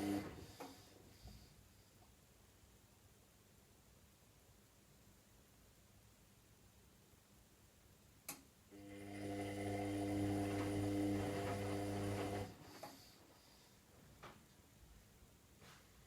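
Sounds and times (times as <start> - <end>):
drain pump mains hum: 0.0 - 0.7, 8.7 - 12.8.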